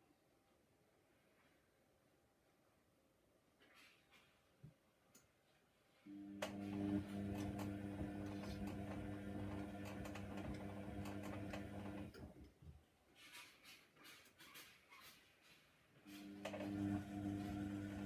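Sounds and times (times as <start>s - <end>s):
washing machine drum motor humming: 6.1s - 12.3s, 16.2s - 18.0s.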